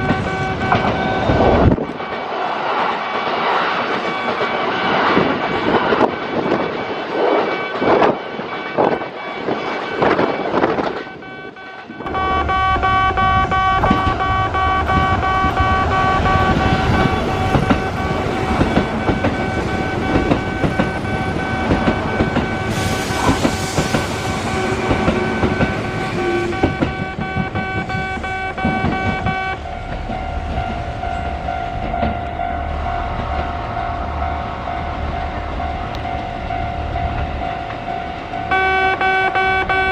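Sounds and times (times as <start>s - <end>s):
steady multi-toned sound: 3.9s - 23.0s
train wheels clacking over rail joints: 16.2s - 30.8s.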